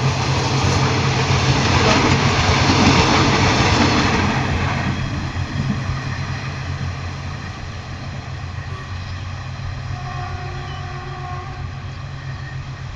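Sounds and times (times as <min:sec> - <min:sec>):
train passing: 0:00.0 - 0:12.9.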